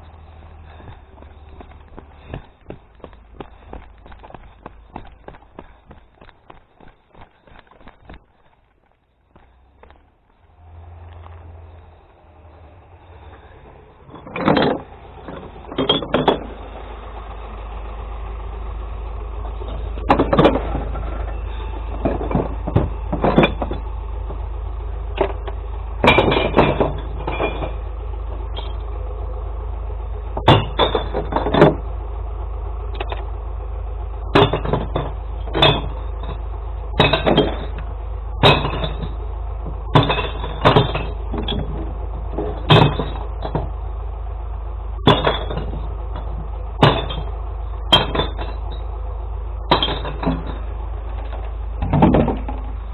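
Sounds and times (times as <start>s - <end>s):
truck engine humming: 0.0s - 52.9s
glass bottles crashing: 26.0s - 27.8s, 37.0s - 37.8s, 38.4s - 39.2s, 40.0s - 41.8s, 45.1s - 45.8s, 49.7s - 50.6s.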